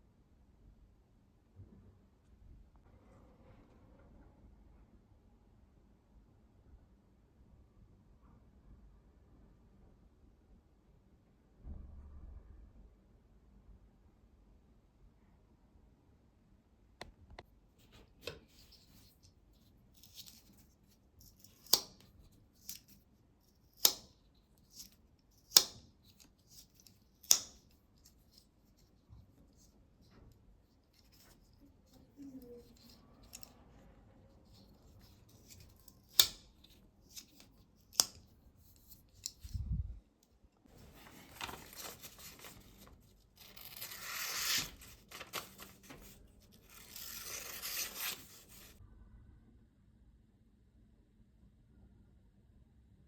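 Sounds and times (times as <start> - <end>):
sharp snipping cuts: 23.8 - 24.1, 24.8 - 25.8, 27.2 - 27.6, 36.0 - 36.4.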